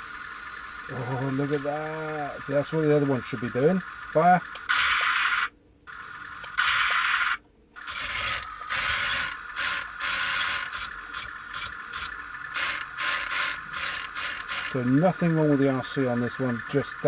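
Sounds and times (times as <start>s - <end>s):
toy tank gear motors running: 0.0s - 17.0s.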